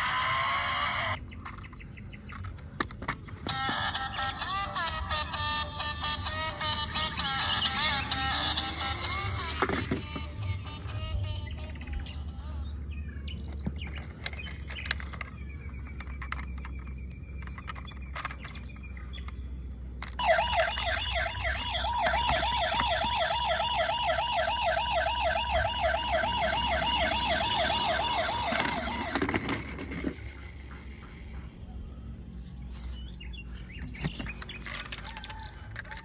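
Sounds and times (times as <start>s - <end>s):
toy police car siren: 0.0s - 1.2s, 3.4s - 12.0s, 20.0s - 30.4s, 34.6s - 36.0s.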